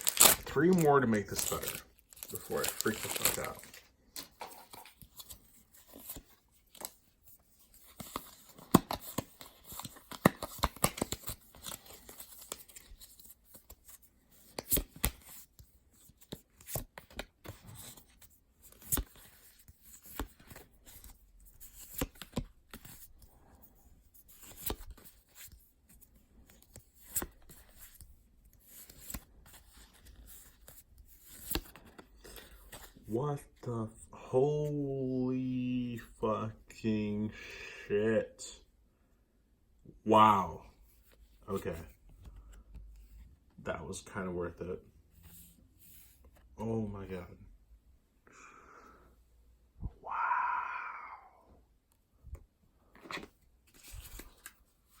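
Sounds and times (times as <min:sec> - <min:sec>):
wrapper tearing and crinkling: 0:00.0 - 0:03.8
cards rustling and flicking: 0:00.0 - 0:33.6, 0:52.3 - 0:55.0.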